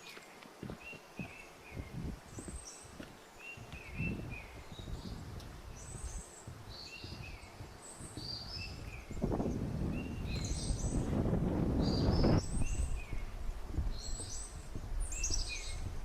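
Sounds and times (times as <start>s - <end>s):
footsteps crunching on trail: 0.0s - 16.0s
songbirds chirping: 0.0s - 16.0s.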